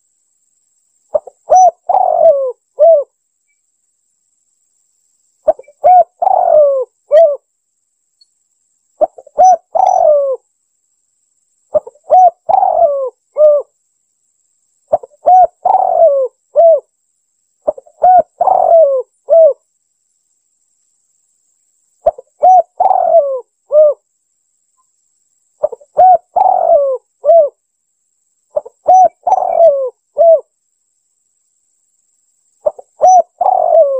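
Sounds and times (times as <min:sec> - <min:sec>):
dove cooing: 0:01.1 - 0:03.1, 0:05.5 - 0:07.4, 0:09.0 - 0:10.4, 0:11.7 - 0:13.7, 0:14.9 - 0:16.9, 0:17.6 - 0:19.6, 0:22.0 - 0:24.0, 0:25.6 - 0:27.6, 0:28.5 - 0:30.5, 0:32.6 - 0:33.9.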